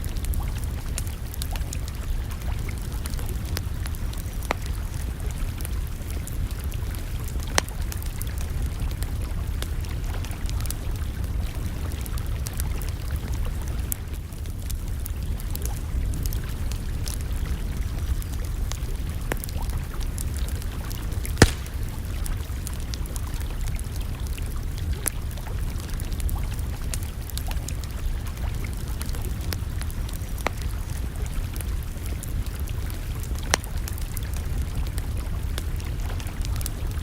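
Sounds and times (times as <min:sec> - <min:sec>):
low fire rumble: 0:00.0 - 0:37.0
campfire crackling and popping: 0:21.4 - 0:22.2.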